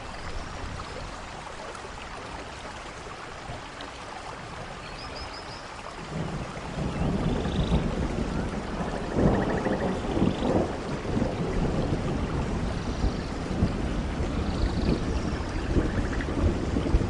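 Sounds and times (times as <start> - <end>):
steady rain: 0.0 - 17.0
thunder rumbling: 6.0 - 17.0.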